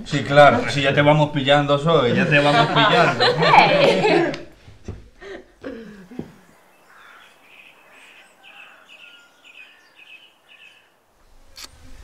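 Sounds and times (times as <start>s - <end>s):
birds chirping: 6.1s - 11.2s.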